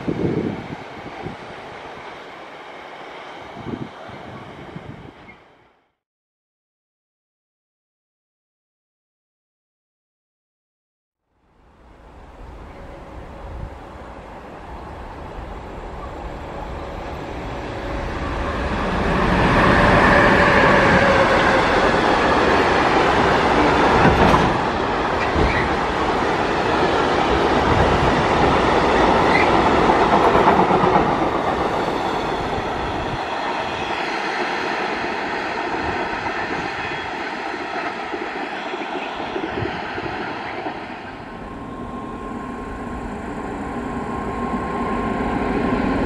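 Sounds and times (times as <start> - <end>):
freight train passing at speed: 0.0 - 6.0, 11.3 - 46.0.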